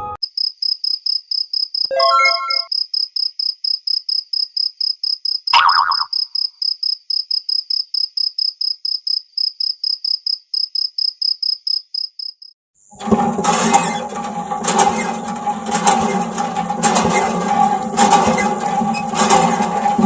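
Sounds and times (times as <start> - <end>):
cricket chirping: 0.2 - 1.9, 2.5 - 12.6.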